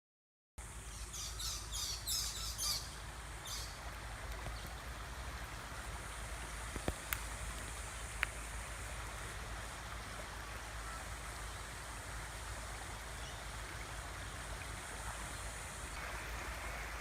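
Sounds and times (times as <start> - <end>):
rushing floodwater: 0.6 - 17.0
birds chirping: 0.9 - 3.8
faint clicks: 6.7 - 8.4.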